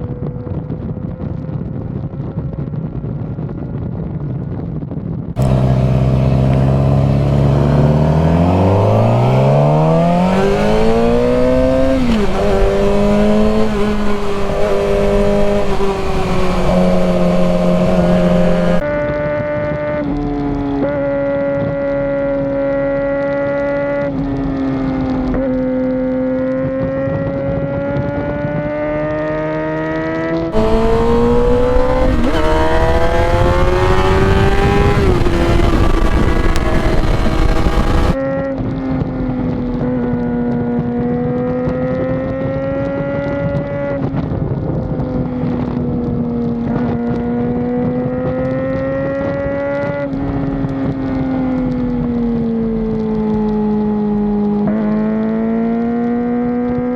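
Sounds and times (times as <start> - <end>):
motorcycle engine revving: 5.4 - 18.8, 28.6 - 38.3, 39.8 - 56.9.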